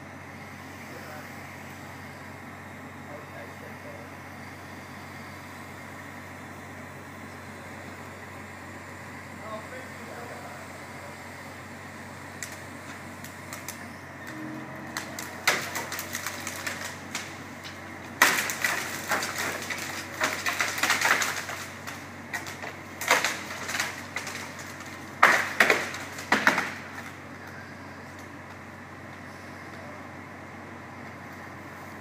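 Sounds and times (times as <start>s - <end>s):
faint engine hum: 0.0s - 32.0s
branches and twigs snapping: 12.3s - 29.3s.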